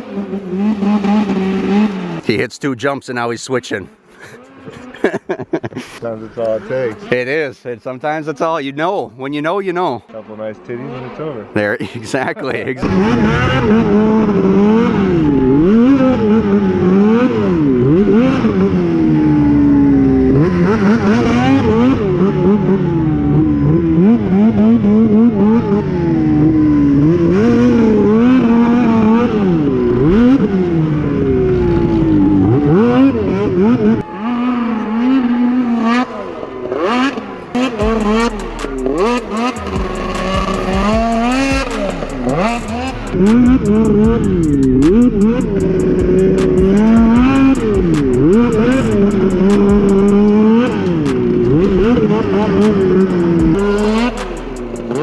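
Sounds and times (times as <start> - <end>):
snowmobile engine revving: 0.0 - 2.4, 3.9 - 7.4, 10.6 - 55.0
sharp clicks: 38.0 - 51.8, 52.6 - 55.0.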